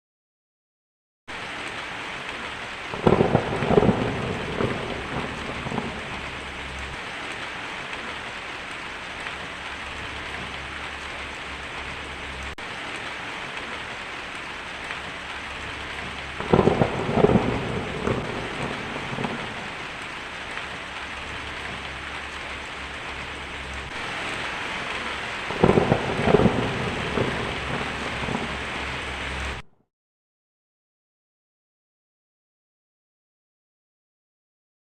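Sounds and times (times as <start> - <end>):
heavy rain on a tin roof: 1.3 - 29.7
thunder rumbling: 2.8 - 8.3, 9.1 - 29.6.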